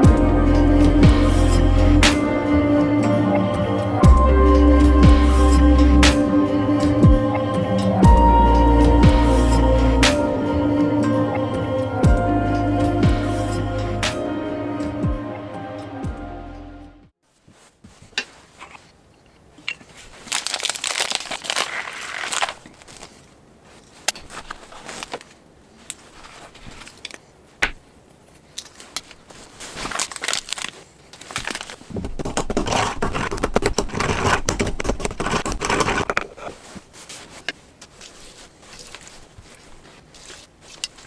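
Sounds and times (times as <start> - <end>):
rustling and crinkling: 17.2 - 41.0.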